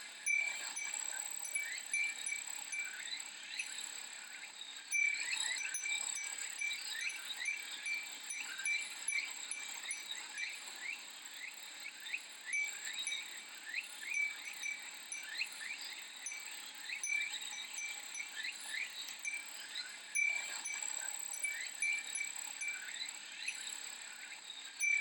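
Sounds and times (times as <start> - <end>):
cicadas droning: 0.0 - 25.0
glass wind chime tinkling: 0.1 - 25.0.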